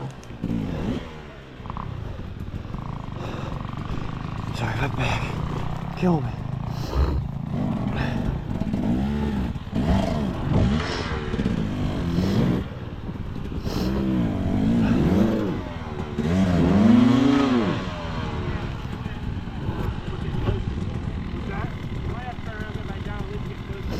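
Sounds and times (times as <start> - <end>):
dirt bike engine revving: 0.0 - 23.9.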